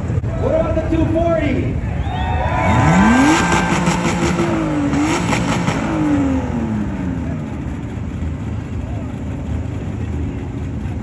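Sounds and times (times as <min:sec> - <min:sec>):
car engine revving: 0:02.4 - 0:11.0.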